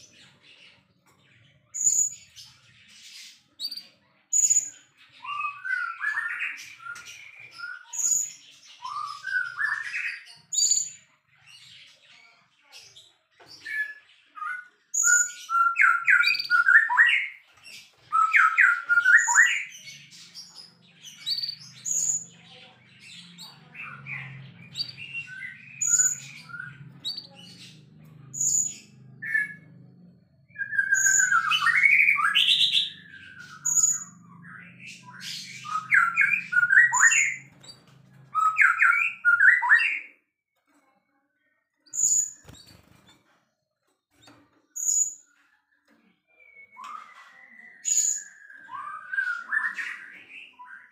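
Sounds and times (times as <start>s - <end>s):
bird singing whistled phrases: 4.4s - 10.8s, 18.1s - 19.7s, 30.5s - 37.5s, 38.4s - 40.1s, 46.4s - 50.9s.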